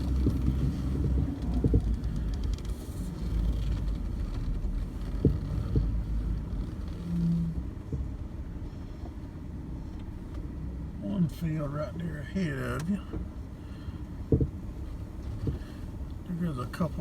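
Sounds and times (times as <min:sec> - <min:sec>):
knocks and rattles from bumps: 0:00.0 - 0:07.1, 0:14.2 - 0:15.7
vehicle engine and road rumble: 0:00.0 - 0:17.0.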